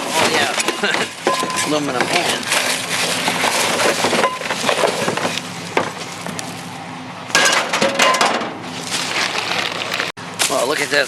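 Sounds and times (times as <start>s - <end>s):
scrap metal clattering: 0.0s - 6.5s, 7.3s - 10.1s.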